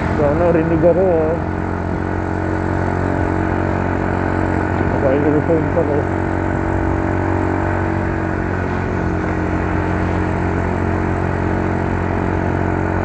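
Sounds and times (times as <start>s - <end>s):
road and wind noise: 0.0s - 13.0s
scooter engine running: 0.0s - 13.0s.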